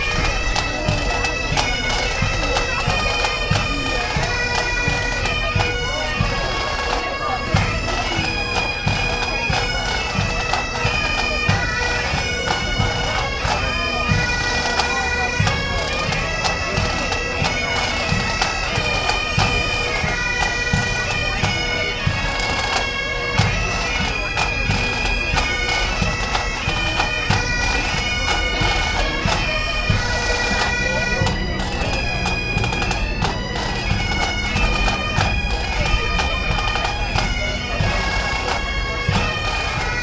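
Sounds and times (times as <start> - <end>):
bagpipe chanter melody: 0.0 - 40.0
bagpipe drone: 0.0 - 40.0.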